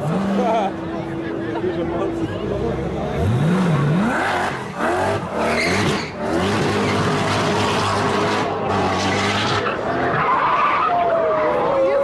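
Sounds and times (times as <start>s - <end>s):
sports car engine accelerating: 1.7s - 10.2s.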